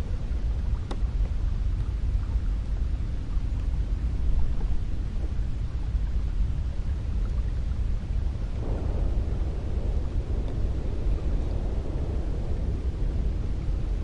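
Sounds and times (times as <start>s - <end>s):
wind blowing: 3.0s - 14.0s.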